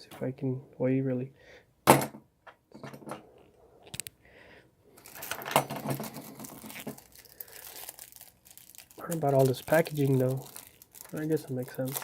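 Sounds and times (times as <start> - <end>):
plastic packaging crackling: 5.0 - 12.0.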